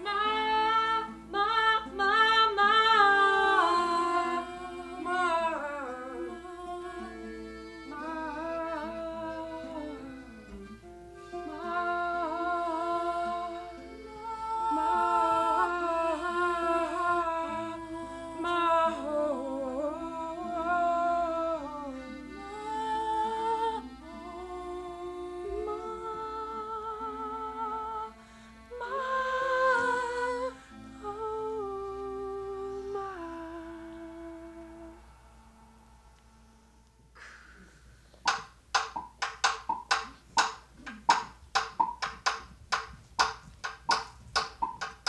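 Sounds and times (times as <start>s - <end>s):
person humming a melody: 0.0s - 10.6s, 11.2s - 35.1s
sustained low background tones: 0.0s - 45.0s.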